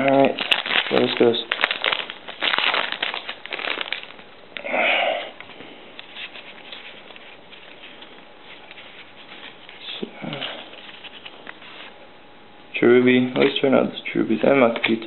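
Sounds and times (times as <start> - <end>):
foil wrapper crinkling and tearing: 0.0 - 4.4, 5.4 - 12.0.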